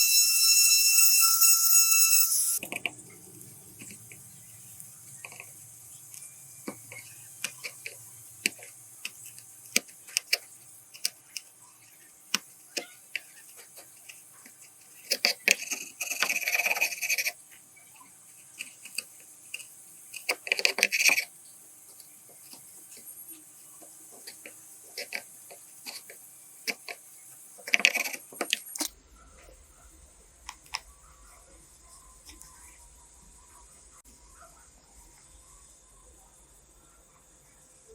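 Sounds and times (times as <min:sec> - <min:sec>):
small parts clicking: 0:04.8 - 0:11.5.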